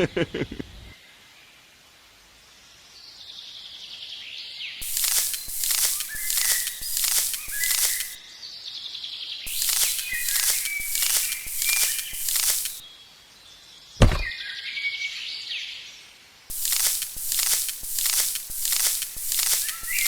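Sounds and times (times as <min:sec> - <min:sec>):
birds chirping: 0:04.8 - 0:08.2, 0:09.5 - 0:12.8, 0:16.5 - 0:20.0
rhythmic scraping strokes: 0:04.8 - 0:08.2, 0:09.5 - 0:12.8, 0:16.5 - 0:20.0
sharp thud: 0:14.0 - 0:14.3.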